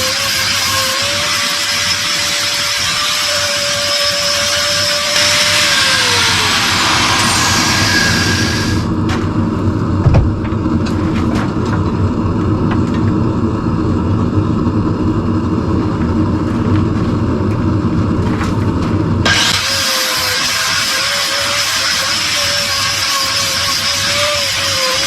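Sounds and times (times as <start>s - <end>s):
grinder grinding steel: 0.0s - 9.0s, 18.3s - 25.0s
low motor hum: 3.8s - 19.5s
knock: 10.0s - 10.4s.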